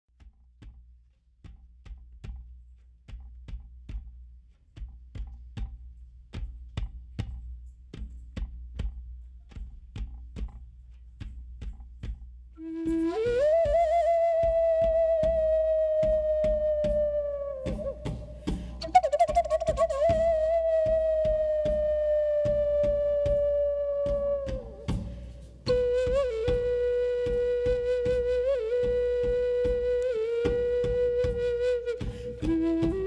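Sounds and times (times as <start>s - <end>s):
hand percussion beat: 4.8s - 33.0s
flute sliding note: 12.6s - 33.0s.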